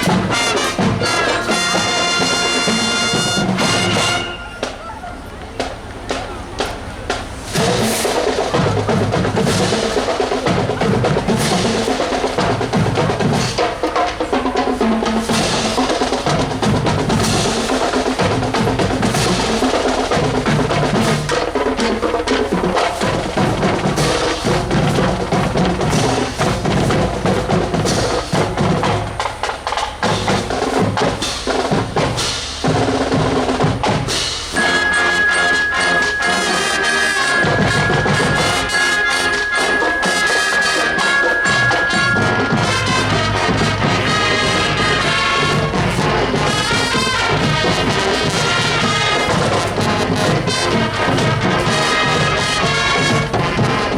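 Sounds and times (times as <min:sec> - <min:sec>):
snare and bass drums: 0:00.0 - 0:53.9
held tones: 0:34.5 - 0:53.9.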